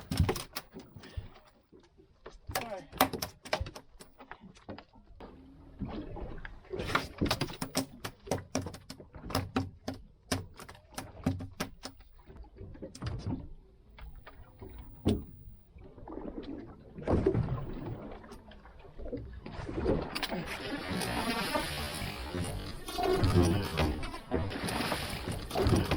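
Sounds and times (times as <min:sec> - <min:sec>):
scrape on boat: 0:20.3 - 0:25.9.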